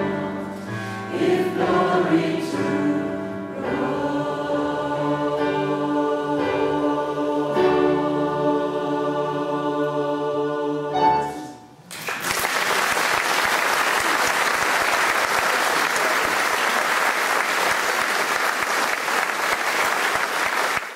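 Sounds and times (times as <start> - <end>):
choir singing: 0.0 - 11.8
audience applause: 11.9 - 20.9.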